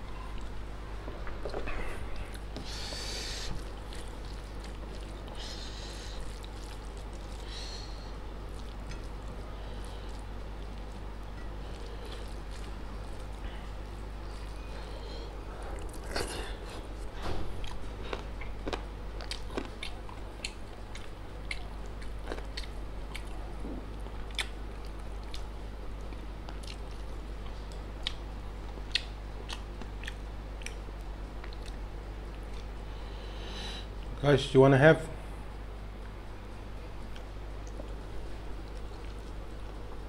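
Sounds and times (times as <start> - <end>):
steady low hum: 0.0 - 40.0
wet chewing mouth noises: 1.4 - 13.5, 15.7 - 32.8.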